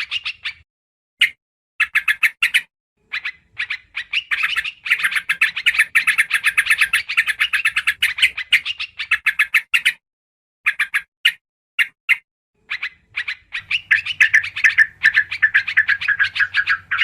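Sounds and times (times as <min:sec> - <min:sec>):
bird chattering calls: 0:01.2 - 0:10.0, 0:12.6 - 0:17.0.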